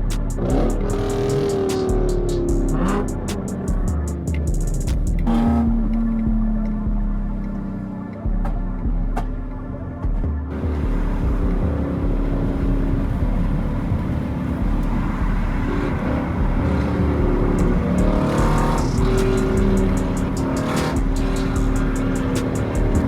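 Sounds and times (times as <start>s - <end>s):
regular ticking: 0.0s - 9.2s, 10.5s - 23.0s
car engines rumbling: 0.0s - 23.0s
music with held tones: 0.0s - 23.0s.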